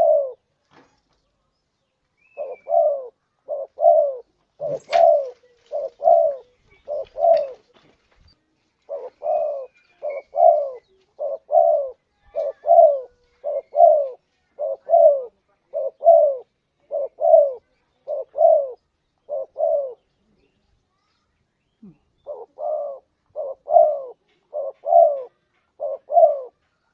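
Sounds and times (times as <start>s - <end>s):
dove cooing two-note call: 0.0s - 0.4s, 2.4s - 7.6s.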